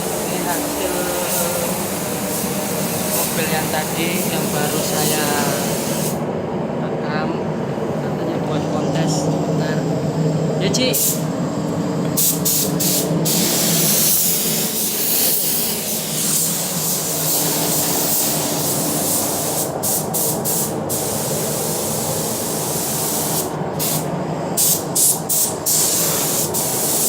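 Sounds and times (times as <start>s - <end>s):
compressed air spray hissing: 0.0s - 6.2s, 10.9s - 11.3s, 12.1s - 27.0s.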